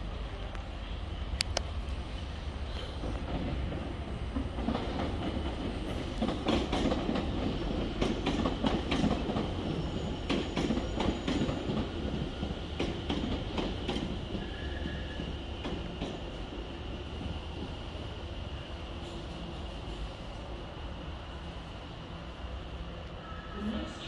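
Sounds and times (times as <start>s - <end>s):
train rumble: 0.0s - 24.0s.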